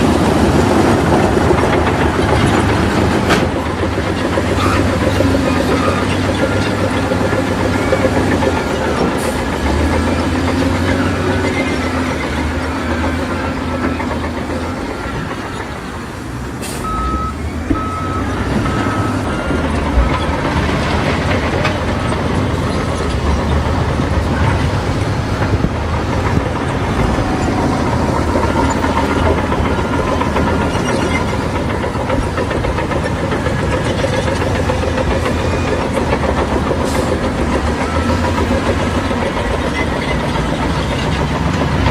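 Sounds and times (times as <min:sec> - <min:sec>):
heavy machinery diesel engines: 0:00.0 - 0:41.9
reversing alarm beeps: 0:10.9 - 0:21.7.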